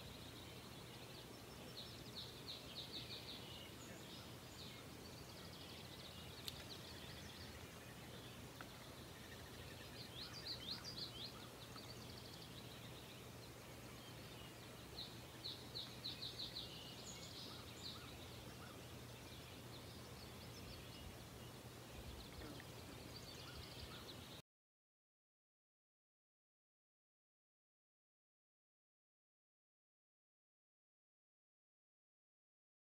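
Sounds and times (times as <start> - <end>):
faint steady hiss: 0.0 - 24.4
songbirds chirping: 0.0 - 24.4.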